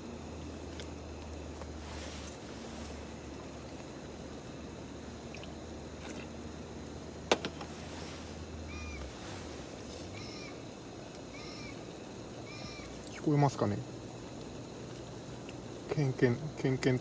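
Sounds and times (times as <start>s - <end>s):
bird calling high notes: 10.1s - 10.6s.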